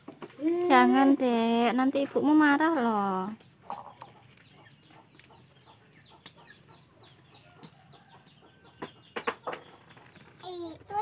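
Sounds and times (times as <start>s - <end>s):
chickens cheeping and clucking: 3.4s - 10.4s.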